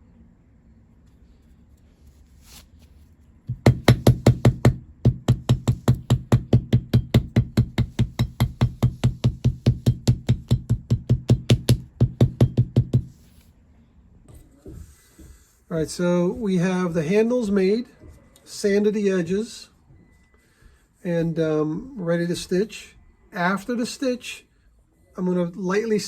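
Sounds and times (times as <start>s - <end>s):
rapid knocking thuds: 3.5s - 13.1s.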